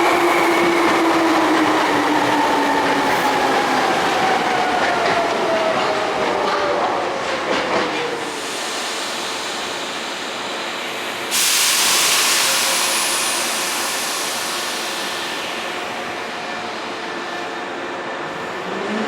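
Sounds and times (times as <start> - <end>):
compressed air hiss: 8.4 - 15.8.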